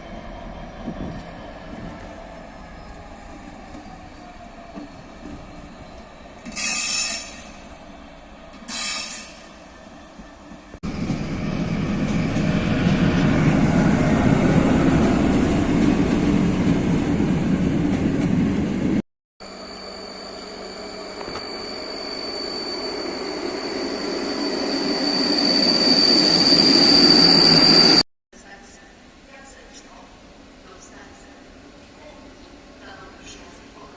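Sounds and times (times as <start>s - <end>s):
wheels squealing on rails: 0.0s - 15.1s, 19.4s - 28.0s
train approaching: 0.0s - 28.0s, 29.0s - 33.9s
train rumbling past: 0.0s - 28.0s.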